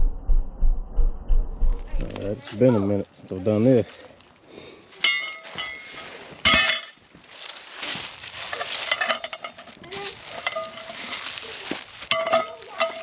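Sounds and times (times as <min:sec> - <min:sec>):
metal clanks ringing: 0:05.0 - 0:07.1, 0:08.5 - 0:11.2, 0:12.1 - 0:13.0
metal parts rattling and clinking: 0:05.0 - 0:07.5, 0:08.1 - 0:13.0.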